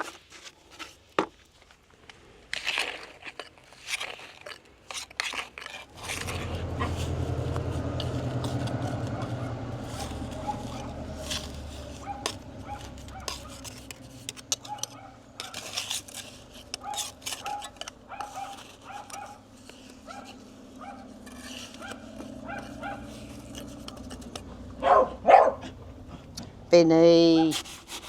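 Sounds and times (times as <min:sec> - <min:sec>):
dog barking loudly: 0:08.9 - 0:13.7, 0:14.6 - 0:15.6, 0:16.8 - 0:23.4, 0:24.8 - 0:25.8, 0:27.3 - 0:27.6
dog yipping and whining: 0:10.3 - 0:11.2, 0:11.8 - 0:13.6, 0:14.7 - 0:15.2, 0:16.8 - 0:19.4, 0:20.0 - 0:21.1, 0:21.8 - 0:23.1, 0:24.8 - 0:25.8.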